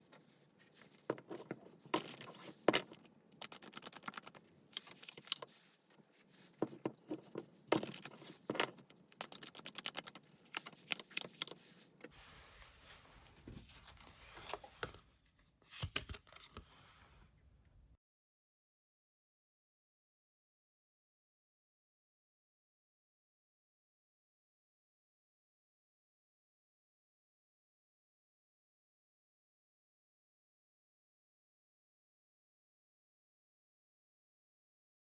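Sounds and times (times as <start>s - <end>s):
cards being shuffled: 0.7s - 11.8s.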